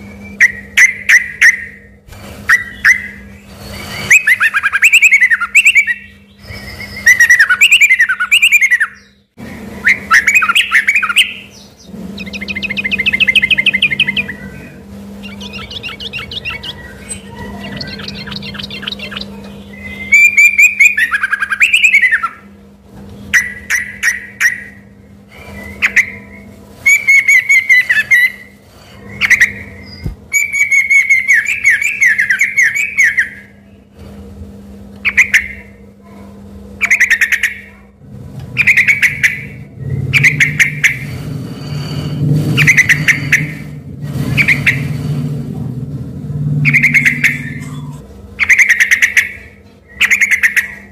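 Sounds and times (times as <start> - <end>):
bird singing varied whistles: 0.0 - 22.4, 23.3 - 33.8, 46.6 - 50.9
steady low hum: 0.0 - 50.9.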